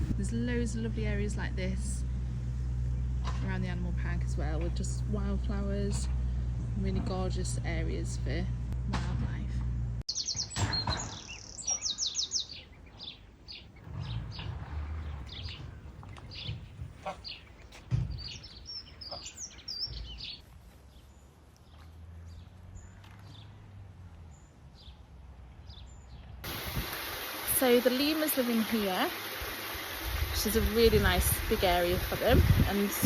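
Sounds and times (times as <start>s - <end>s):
small birds chirping: 10.1s - 26.4s.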